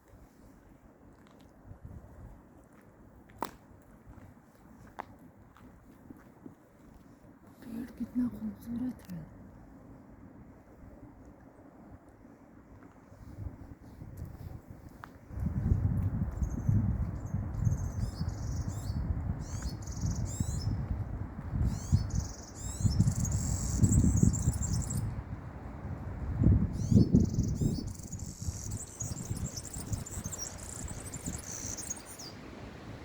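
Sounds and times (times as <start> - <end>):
songbirds chirping and trilling: 16.3 - 20.9, 21.6 - 25.1, 26.7 - 32.5.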